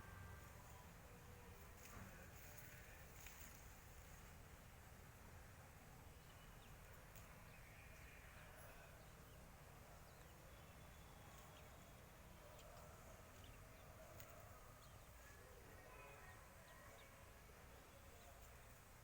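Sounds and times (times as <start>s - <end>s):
low steady background noise: 0.0s - 19.0s
faint bird chirps: 6.2s - 18.8s.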